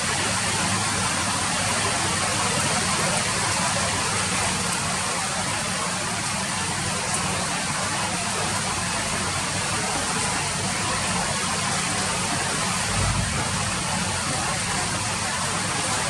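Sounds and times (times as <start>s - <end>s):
heavy rain falling: 0.0s - 16.0s
low rumble: 12.8s - 14.4s.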